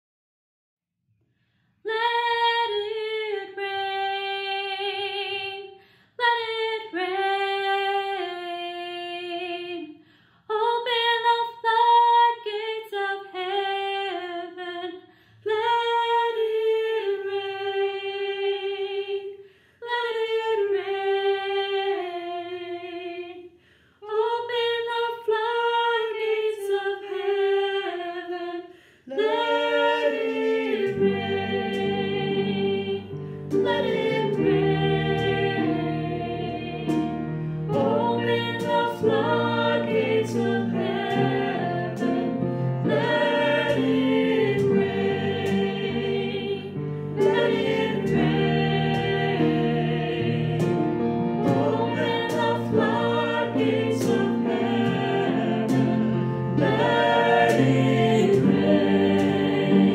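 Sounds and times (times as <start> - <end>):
more voices singing parts: 29.1 - 59.9.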